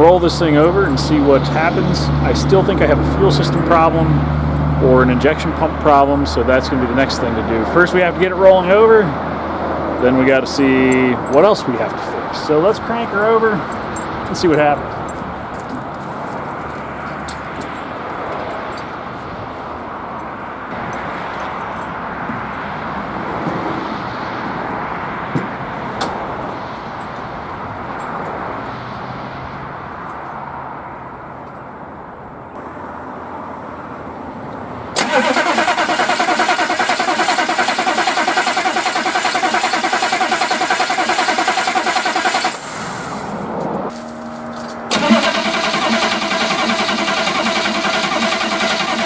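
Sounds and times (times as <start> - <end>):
starter motor cranking engine: 35.0 - 43.4, 44.9 - 49.0.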